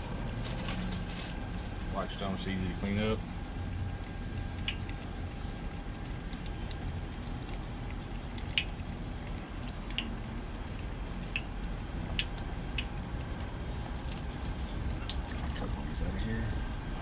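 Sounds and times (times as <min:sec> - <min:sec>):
food frying in hot oil: 0:00.0 - 0:17.0
low steady rumble: 0:00.0 - 0:17.0
sharp pops and crackles: 0:02.8 - 0:15.7.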